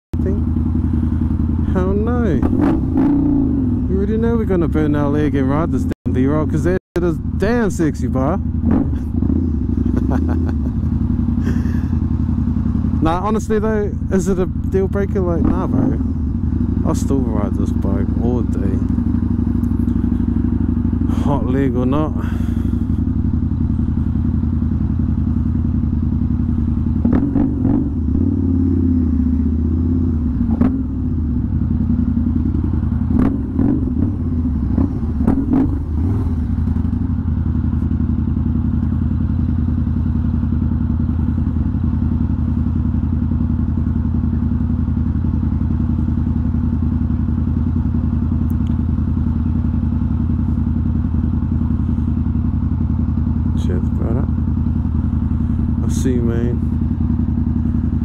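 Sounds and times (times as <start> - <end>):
motorcycle engine idling: 0.2 - 58.0
engine knocks: 32.4 - 37.2.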